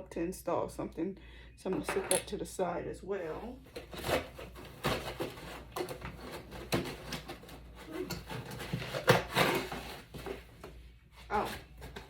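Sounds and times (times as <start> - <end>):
packing foam rustling: 3.6 - 12.0.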